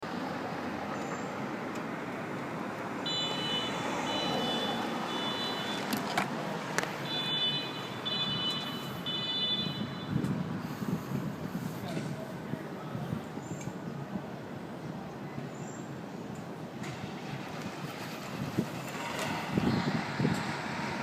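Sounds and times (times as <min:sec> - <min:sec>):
road traffic: 0:00.0 - 0:21.0
high-pitched beep: 0:03.1 - 0:05.7.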